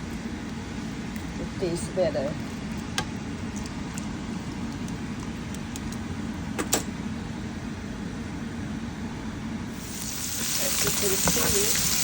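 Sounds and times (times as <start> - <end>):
pot steaming on stove: 9.7 - 12.0.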